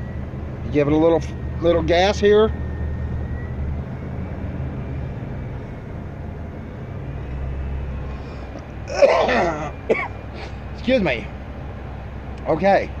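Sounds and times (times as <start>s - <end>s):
van engine droning: 0.0s - 13.0s
man coughing: 8.9s - 10.5s.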